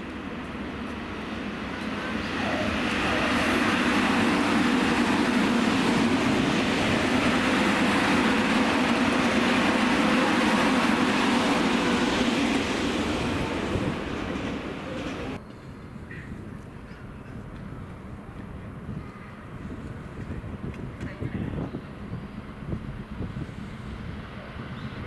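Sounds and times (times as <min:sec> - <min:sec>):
electric train passing: 0:00.0 - 0:15.4
wheels rumbling on rail: 0:00.0 - 0:15.4.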